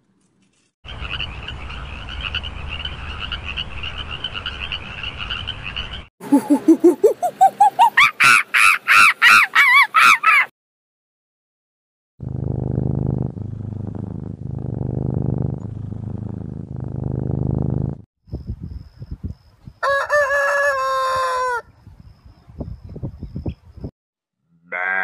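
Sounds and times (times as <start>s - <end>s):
hens clucking: 6.2s - 8.1s
big cat growling: 12.2s - 18.0s
rooster crowing: 19.8s - 21.7s.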